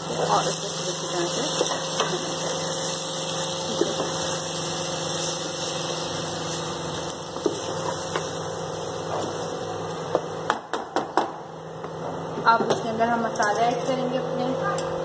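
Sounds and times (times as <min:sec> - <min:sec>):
vegetables sizzling in hot oil: 0:00.0 - 0:10.3.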